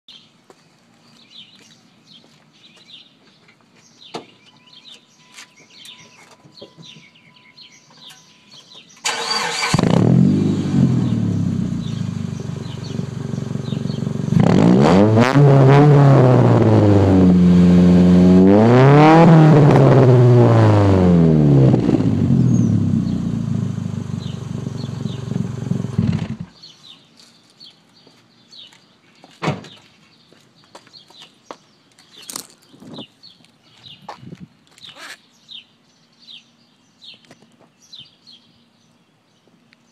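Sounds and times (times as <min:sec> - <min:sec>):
car engine starting and idling: 0:09.0 - 0:15.2, 0:19.8 - 0:26.5
car engine revving: 0:09.1 - 0:26.5.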